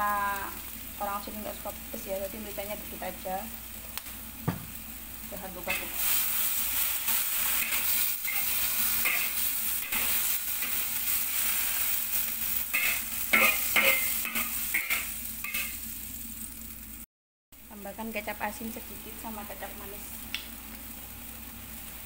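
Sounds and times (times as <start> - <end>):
vegetables sizzling in a wok: 0.0 - 22.0
metal spatula scraping a wok: 5.7 - 15.8.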